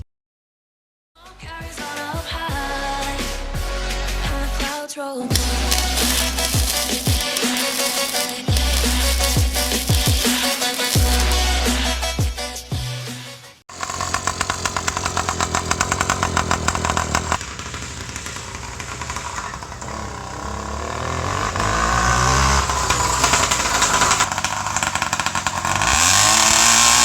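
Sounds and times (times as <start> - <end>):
small two-stroke engine revving: 5.3 - 12.0, 13.7 - 27.0.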